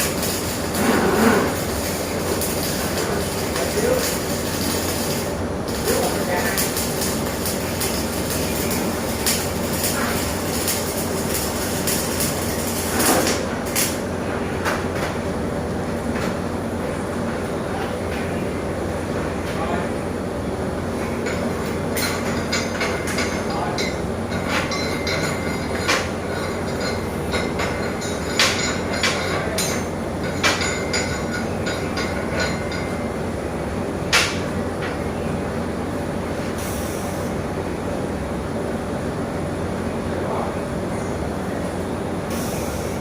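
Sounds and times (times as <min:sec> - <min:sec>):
arc welding hiss and crackle: 0:00.0 - 0:15.2, 0:36.2 - 0:37.5, 0:42.2 - 0:43.0.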